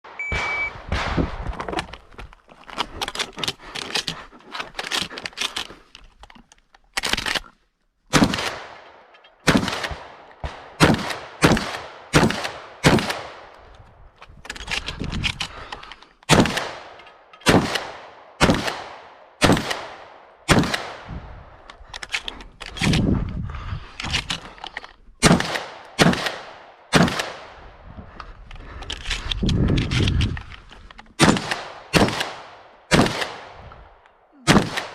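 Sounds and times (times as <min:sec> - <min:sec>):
shotgun shots: 0:08.1 - 0:13.4, 0:16.3 - 0:21.2, 0:25.2 - 0:27.6, 0:31.2 - 0:33.7, 0:34.4 - 0:34.9.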